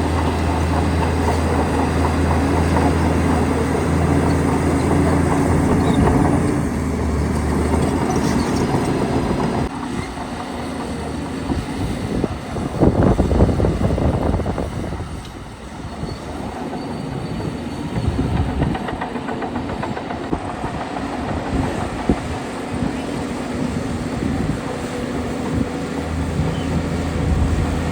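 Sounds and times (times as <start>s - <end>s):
diesel machinery engine hum: 0.0s - 27.9s
rattling clatter: 0.1s - 11.0s.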